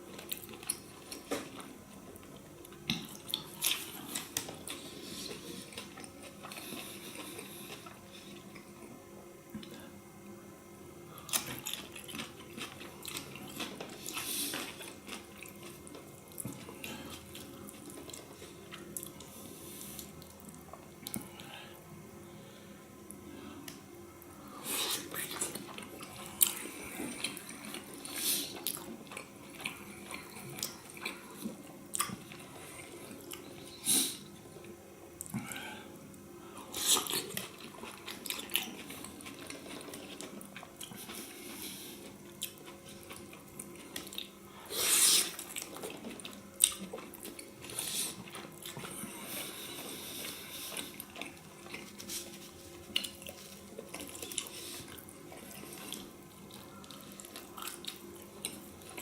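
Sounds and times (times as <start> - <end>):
chewing wet mouth sounds: 11.3 - 21.4, 24.7 - 35.6, 36.6 - 59.0.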